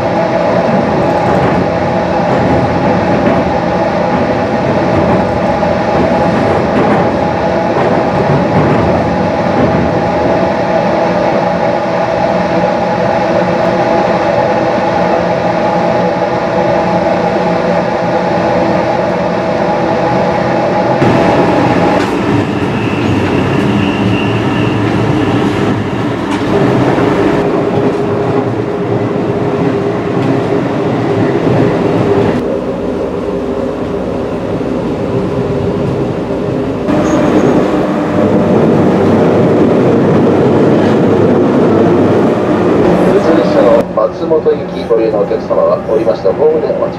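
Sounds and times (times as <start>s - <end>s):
wheel-on-rail noise: 35.1s - 43.8s
train motor tones: 36.9s - 40.0s.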